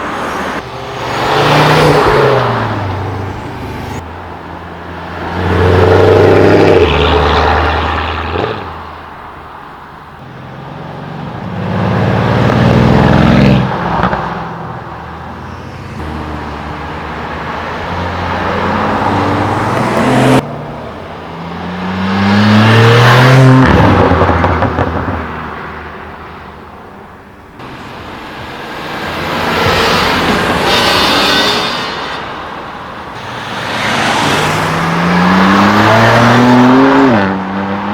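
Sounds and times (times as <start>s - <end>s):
cars accelerating past: 0.0s - 4.0s, 15.4s - 25.6s, 33.2s - 37.9s.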